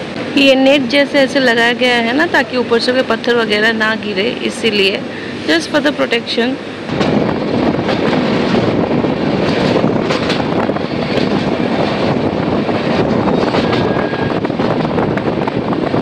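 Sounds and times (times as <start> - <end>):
train wheels rumbling on rails: 0.0 - 16.0
rushing air: 5.0 - 5.8, 6.6 - 16.0.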